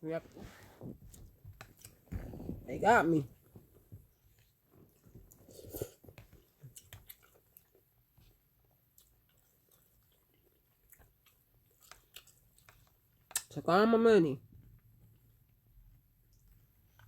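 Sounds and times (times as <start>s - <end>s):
chewing noodles: 0.5s - 2.5s, 3.3s - 13.6s.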